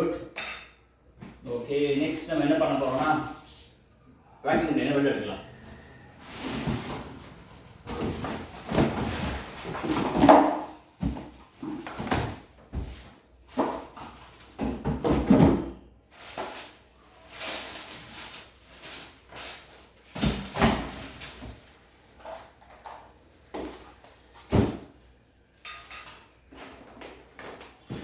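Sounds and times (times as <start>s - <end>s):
cardboard box scraping and rustling: 5.6s - 10.2s.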